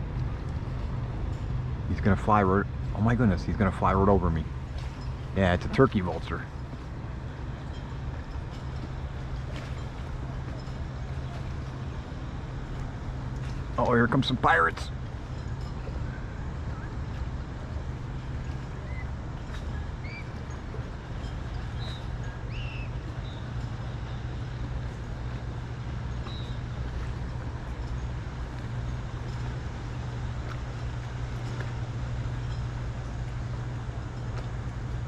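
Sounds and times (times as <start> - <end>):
motorboat engine droning: 0.0 - 35.0
bird chirps: 21.6 - 23.5, 26.2 - 26.6.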